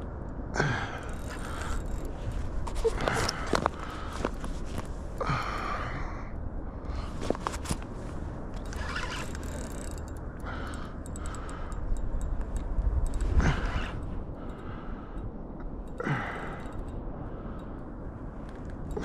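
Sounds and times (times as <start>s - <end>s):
wind rumble on microphone: 0.0s - 19.0s
fishing reel clicking and scraping: 1.0s - 5.2s, 7.3s - 17.8s.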